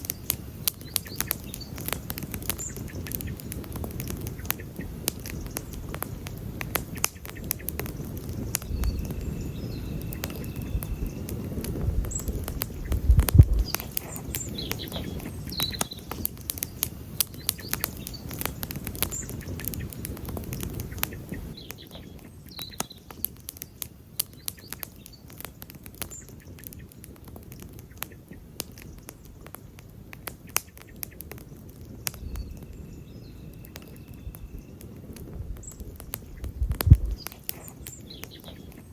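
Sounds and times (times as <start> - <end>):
campfire crackling and popping: 0.0 - 38.9
low rumble: 36.4 - 37.2.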